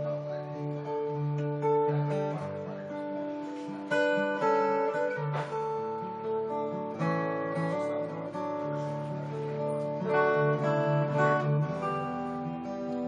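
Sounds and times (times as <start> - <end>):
solo acoustic guitar: 0.0 - 13.0.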